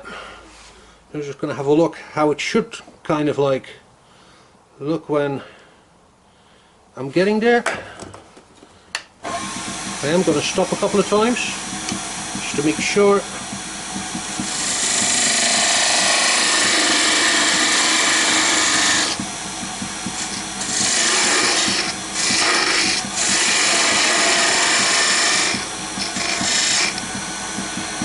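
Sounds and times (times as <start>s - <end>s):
lathe motor humming: 9.2s - 28.0s
tool cutting wood on lathe: 9.2s - 28.0s.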